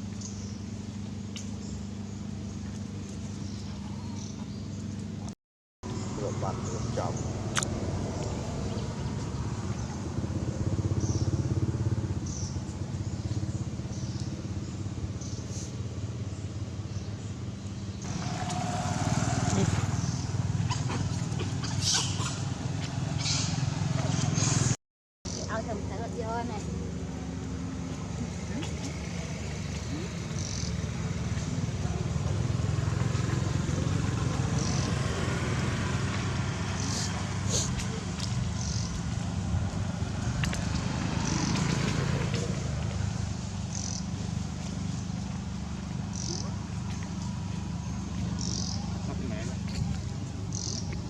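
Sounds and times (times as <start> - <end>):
small engine running: 17.9 - 51.0.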